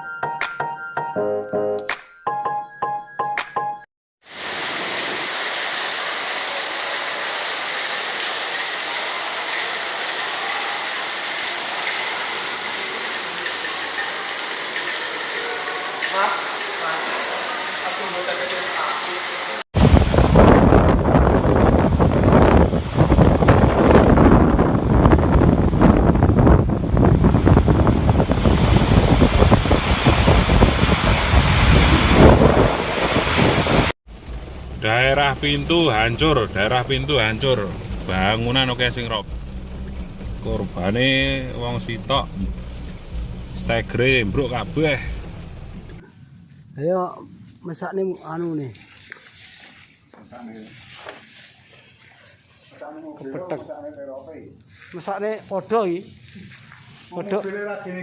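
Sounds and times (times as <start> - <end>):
heavy rain hissing: 4.2 - 46.0
wind buffeting microphone: 19.8 - 33.9.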